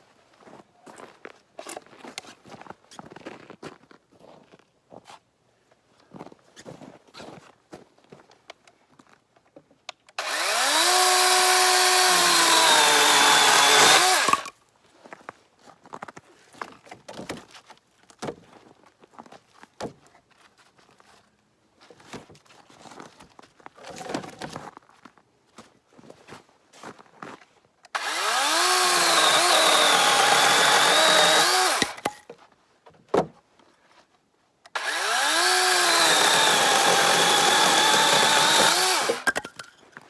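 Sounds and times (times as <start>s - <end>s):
chainsaw cutting branch: 10.2s - 14.5s, 27.9s - 32.2s, 34.7s - 39.6s.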